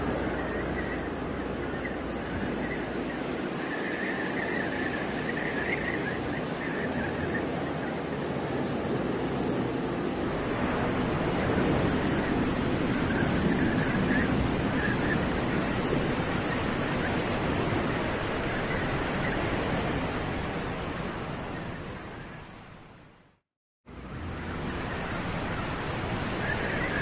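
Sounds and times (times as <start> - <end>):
wind on microphone: 0.0 - 23.3, 23.9 - 27.0
traffic: 23.9 - 27.0.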